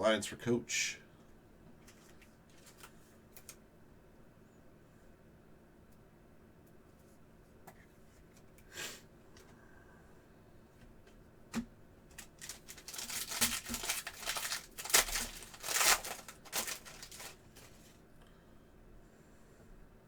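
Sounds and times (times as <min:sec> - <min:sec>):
wrapper tearing and crinkling: 0:12.1 - 0:18.0.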